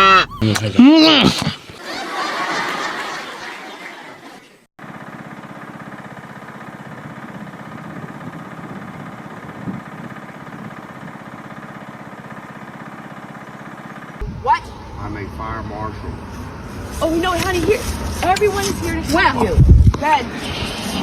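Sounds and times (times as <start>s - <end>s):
engine idling: 4.8s - 18.5s.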